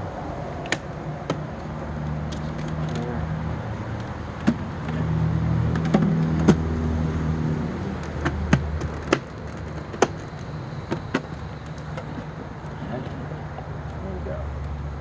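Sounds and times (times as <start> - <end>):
plastic parts clicking together: 8.0 - 12.8.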